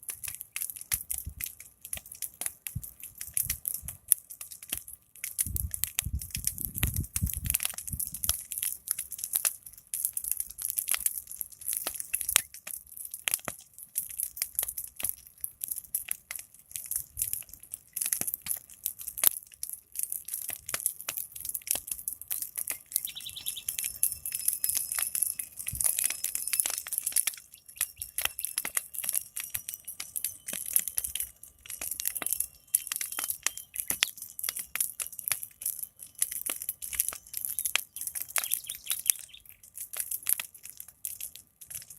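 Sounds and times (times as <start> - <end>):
big fire crackling: 0.0 - 41.9
birds chirping: 22.8 - 25.1, 27.4 - 28.7, 37.5 - 39.6.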